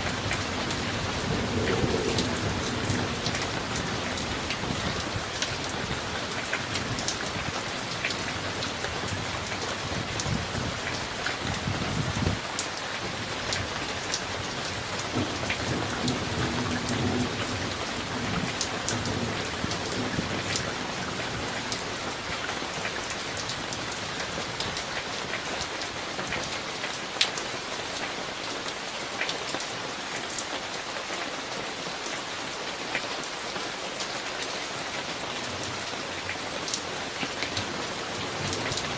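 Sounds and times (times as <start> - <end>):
raindrops ticking close by: 0.0 - 38.9
steady rain: 0.0 - 38.9
thunder rumbling: 0.1 - 7.1, 14.5 - 22.1.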